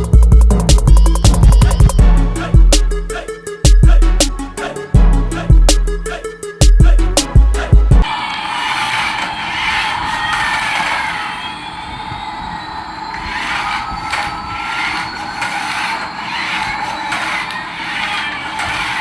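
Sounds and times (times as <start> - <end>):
toy electric motor whirring: 13.0 - 19.0.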